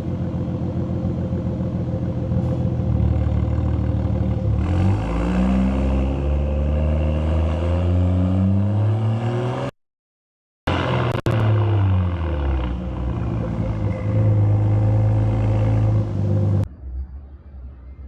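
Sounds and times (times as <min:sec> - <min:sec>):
car engine revving up: 0:03.1 - 0:09.8, 0:10.7 - 0:16.7.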